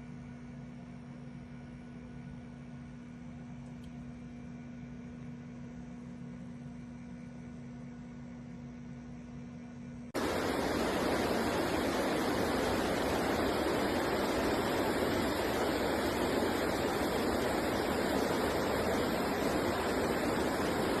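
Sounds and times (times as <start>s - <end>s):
running water rushing: 10.2s - 21.0s.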